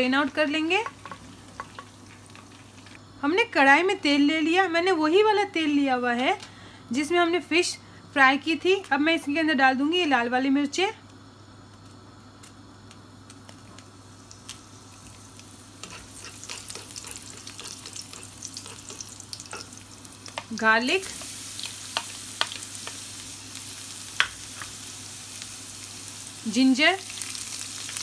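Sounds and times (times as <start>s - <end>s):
chillies sizzling in hot oil: 0.0s - 6.4s, 13.2s - 28.0s
spoon clicking and scraping pan: 15.8s - 20.5s.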